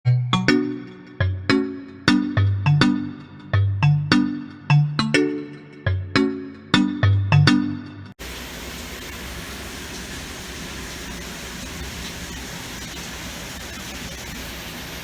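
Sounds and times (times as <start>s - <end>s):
background music: 0.1s - 8.2s
rain falling: 8.2s - 15.0s.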